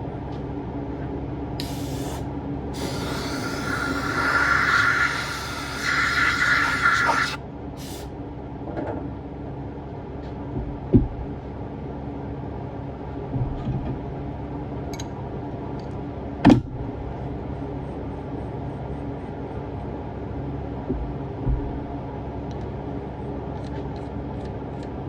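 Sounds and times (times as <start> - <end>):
low machine hum: 7.4 - 25.0.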